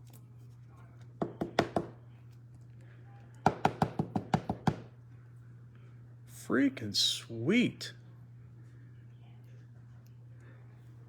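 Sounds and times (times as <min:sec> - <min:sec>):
sharp knocks on a hard surface: 0:01.2 - 0:02.0, 0:03.5 - 0:04.9.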